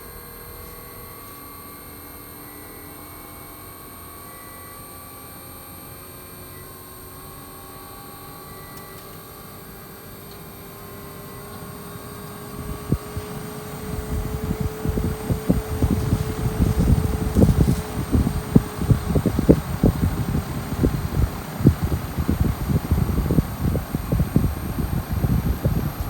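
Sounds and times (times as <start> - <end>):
air conditioner fan hum: 6.1 - 26.0
wind buffeting microphone: 12.3 - 26.0.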